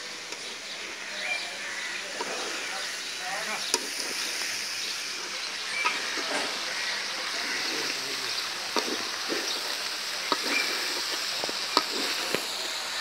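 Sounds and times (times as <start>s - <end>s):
chickpeas sizzling in pan: 0.0s - 13.0s
steel spatula scraping: 10.3s - 12.4s.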